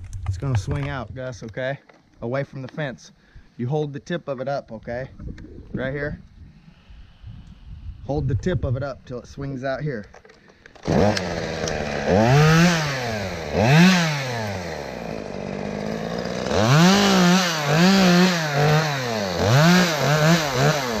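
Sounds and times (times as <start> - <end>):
chainsaw revving through wood: 10.8 - 21.0.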